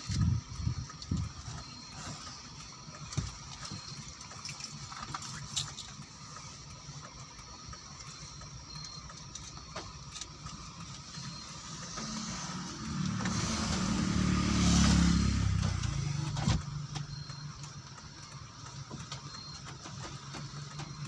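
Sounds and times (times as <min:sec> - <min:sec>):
raindrops ticking: 0:00.0 - 0:13.2, 0:14.4 - 0:21.0
steady rain falling: 0:16.7 - 0:21.0.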